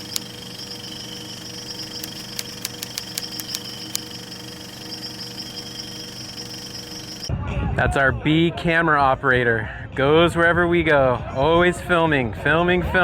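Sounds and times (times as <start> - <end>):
steady hum with high whine: 0.0 - 7.3.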